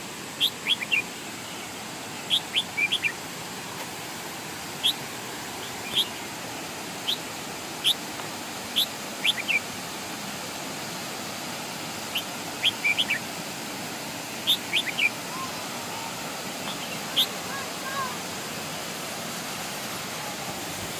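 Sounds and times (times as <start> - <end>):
waterfall rushing: 0.0 - 20.9
high bird chirps: 2.3 - 3.2, 12.1 - 13.2, 14.4 - 15.4.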